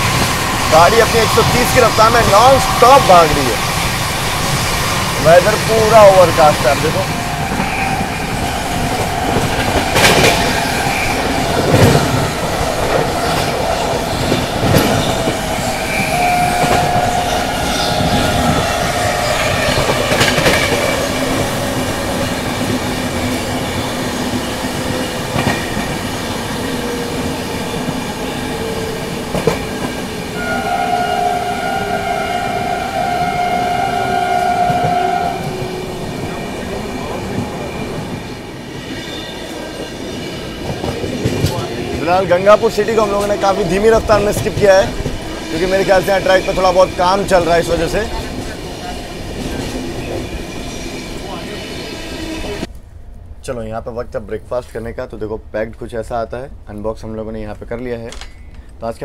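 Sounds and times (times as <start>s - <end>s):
train rumbling on rails: 0.0s - 59.0s
locomotive horn: 15.9s - 20.0s, 30.4s - 36.2s
wheels clicking over rail joints: 18.0s - 30.3s.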